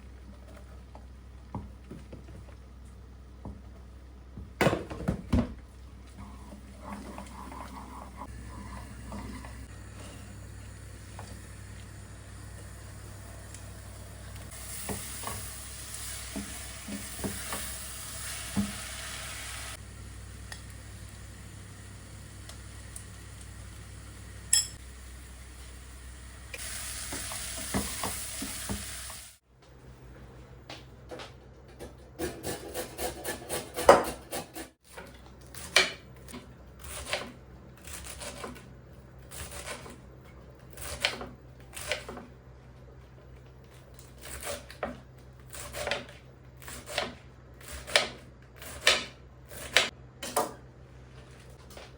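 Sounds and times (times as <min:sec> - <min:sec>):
food sizzling in a frying pan: 0:11.4 - 0:29.4.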